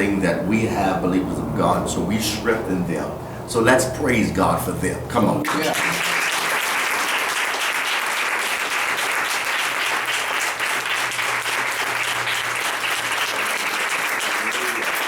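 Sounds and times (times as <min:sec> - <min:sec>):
congregation applauding: 0:05.4 - 0:15.0.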